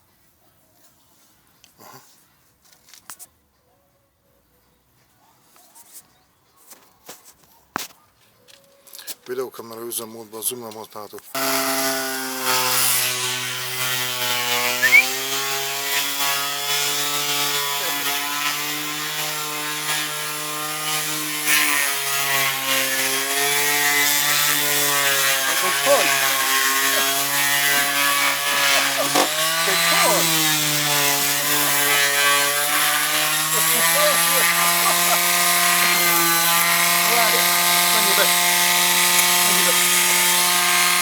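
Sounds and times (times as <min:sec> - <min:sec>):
electric power tool running: 0:11.4 - 0:41.0.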